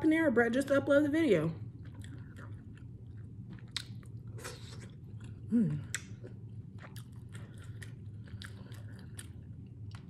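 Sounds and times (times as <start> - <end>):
wet chewing clicks and smacks: 1.8 - 10.0
person humming: 5.5 - 5.9.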